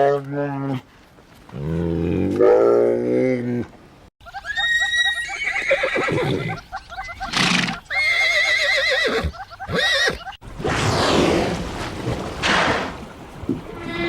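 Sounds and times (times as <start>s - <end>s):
horse whinnying: 4.5s - 6.6s, 7.2s - 11.5s.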